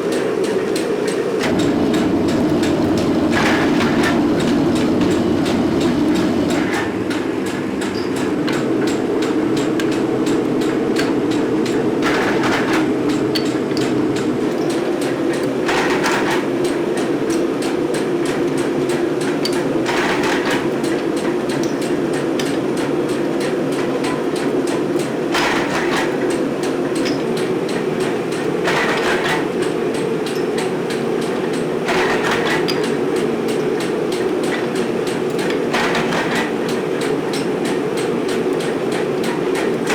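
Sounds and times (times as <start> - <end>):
metalworking machinery running: 0.4 - 18.3
rapid even ticking: 1.4 - 6.8.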